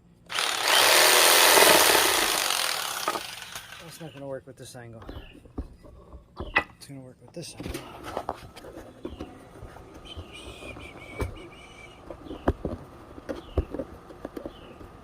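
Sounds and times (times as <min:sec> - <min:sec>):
high wavering chirp: 0:09.9 - 0:12.5.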